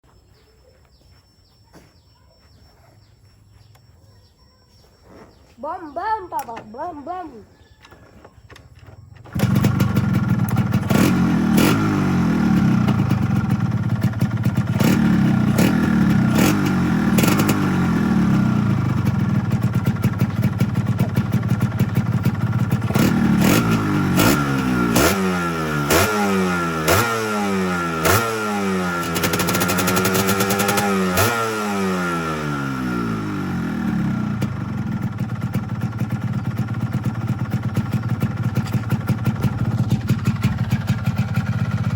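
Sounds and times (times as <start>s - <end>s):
motorcycle engine revving: 8.8s - 41.9s.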